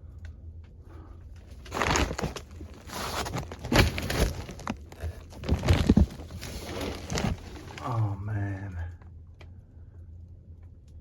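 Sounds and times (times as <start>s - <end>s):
low steady hum: 0.0s - 11.0s
scrapes: 1.4s - 8.0s
rustling and scuffing: 1.5s - 7.8s.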